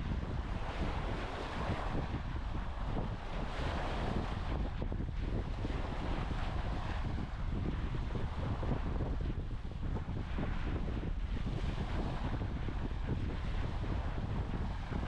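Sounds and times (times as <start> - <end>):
wind buffeting microphone: 0.0 - 15.0
small waves washing on beach: 0.3 - 9.1.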